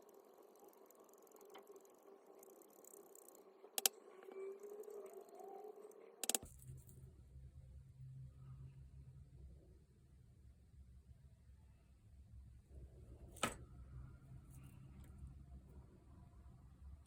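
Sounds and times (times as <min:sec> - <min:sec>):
sharp clicks: 0:02.9 - 0:04.0, 0:06.2 - 0:06.5.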